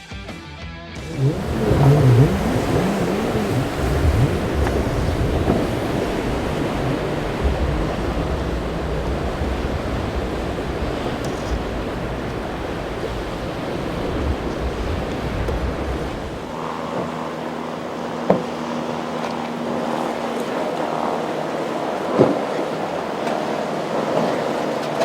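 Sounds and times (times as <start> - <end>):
wind buffeting microphone: 1.0 - 16.6
waves and surf washing: 1.0 - 25.0.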